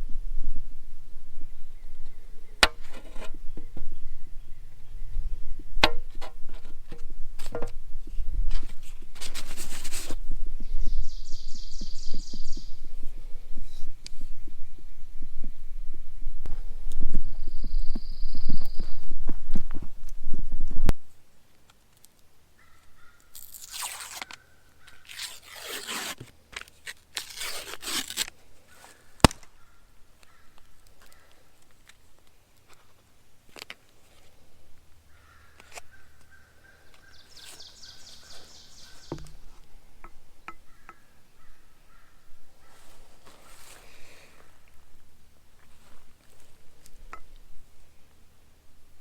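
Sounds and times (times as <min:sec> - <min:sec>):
packaging crinkling and tearing: 0:23.4 - 0:28.4.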